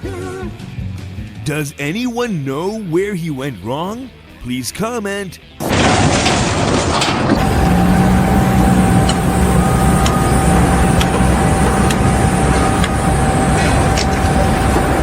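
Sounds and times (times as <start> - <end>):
engine rumbling: 5.6 - 15.0
thin steady whine: 7.3 - 15.0.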